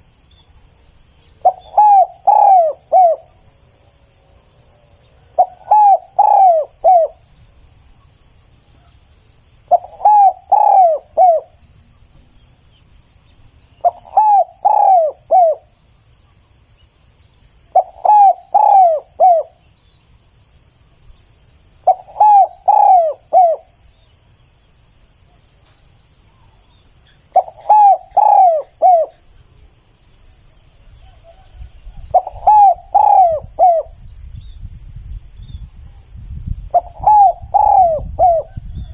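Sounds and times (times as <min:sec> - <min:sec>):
insect trilling: 0:01.3 - 0:03.4, 0:05.3 - 0:07.3, 0:09.7 - 0:11.6, 0:13.6 - 0:15.9, 0:17.5 - 0:20.0, 0:21.8 - 0:24.1, 0:26.3 - 0:29.5, 0:30.1 - 0:34.4, 0:36.7 - 0:38.9
dove cooing: 0:01.4 - 0:03.4, 0:05.3 - 0:07.2, 0:09.7 - 0:11.6, 0:13.8 - 0:15.7, 0:17.7 - 0:19.6, 0:21.8 - 0:23.8, 0:27.3 - 0:29.2, 0:31.0 - 0:34.0, 0:36.7 - 0:38.9.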